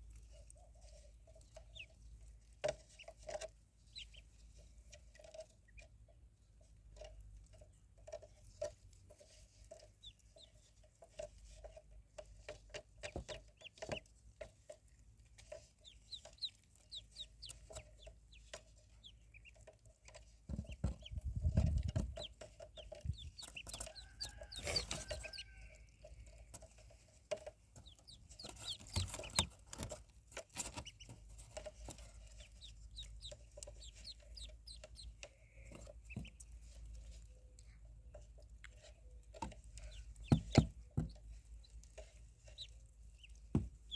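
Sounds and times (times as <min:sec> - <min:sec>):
ducklings peeping: 0:00.6 - 0:02.1, 0:02.7 - 0:04.4, 0:09.7 - 0:10.6, 0:12.7 - 0:14.1, 0:15.4 - 0:37.9, 0:38.6 - 0:43.9.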